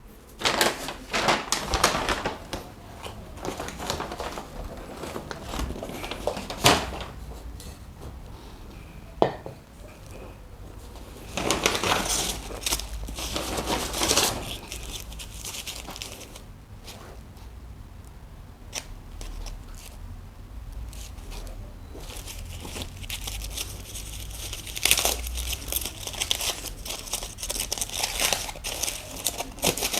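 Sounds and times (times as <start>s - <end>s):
paper wrapping crinkling: 0.2s - 7.5s, 9.8s - 17.2s, 20.8s - 29.9s.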